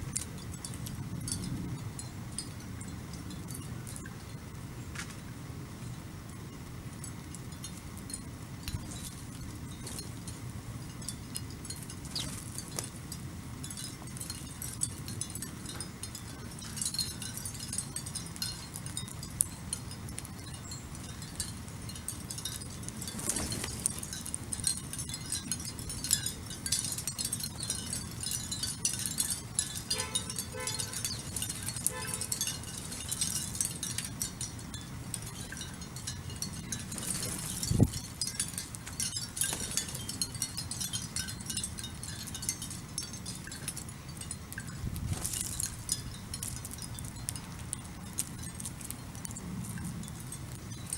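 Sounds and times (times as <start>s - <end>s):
small birds chirping: 15.4s - 41.0s.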